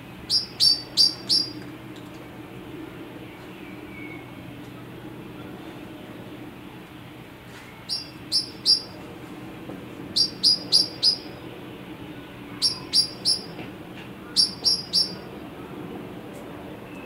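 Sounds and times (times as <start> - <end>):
low steady hum: 0.0 - 17.0
bird chirping: 0.3 - 1.6, 7.8 - 9.0, 10.2 - 11.4, 12.6 - 13.6, 14.3 - 15.3.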